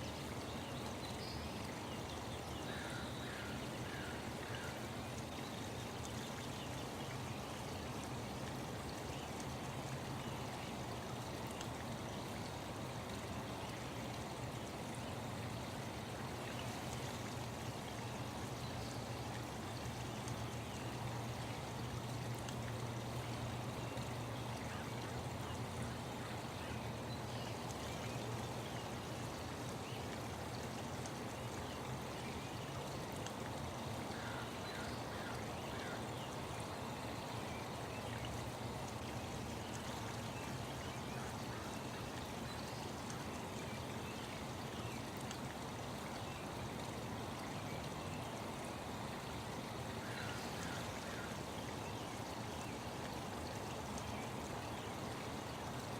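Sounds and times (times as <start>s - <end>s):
stream flowing: 0.0s - 55.9s.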